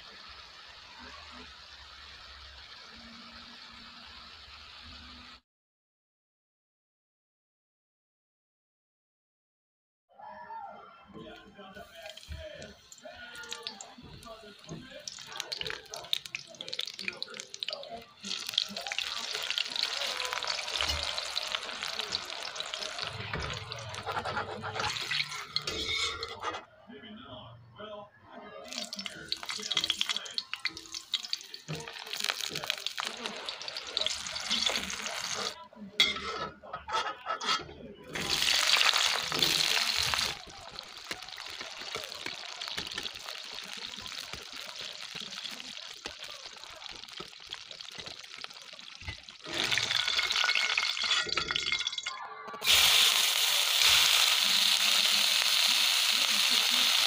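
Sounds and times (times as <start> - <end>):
eggplant sizzling in hot oil: 0.0 - 5.4, 11.9 - 26.3, 28.7 - 35.6, 38.1 - 52.0, 52.6 - 57.0
metal spatula scraping and tapping: 23.9 - 26.6, 36.0 - 37.8.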